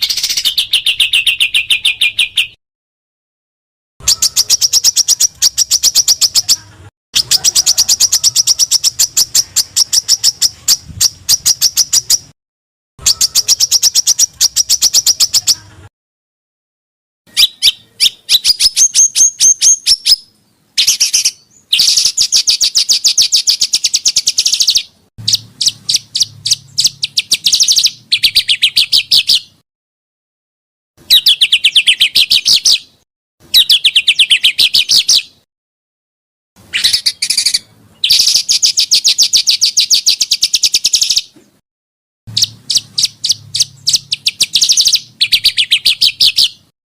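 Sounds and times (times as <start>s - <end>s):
songbird trills: 0.0s - 2.6s, 4.0s - 6.6s, 13.0s - 15.7s, 17.3s - 29.6s, 31.1s - 35.4s, 36.7s - 41.4s, 42.3s - 46.7s.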